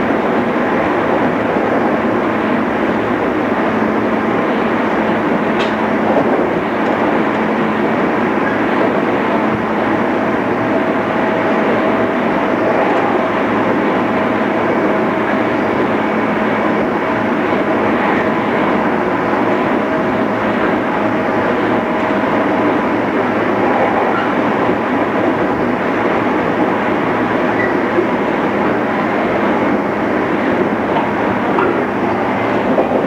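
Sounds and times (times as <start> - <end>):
faint steady whine: 0.0 - 33.0
train wheels rumbling: 0.0 - 33.0.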